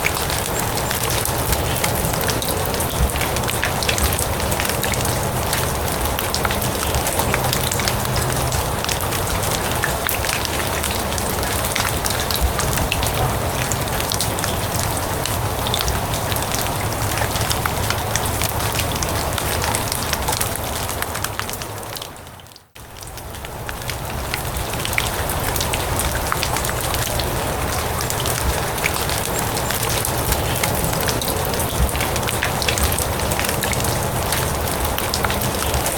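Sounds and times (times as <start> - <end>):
rain on grass and leaves: 0.0 - 35.9.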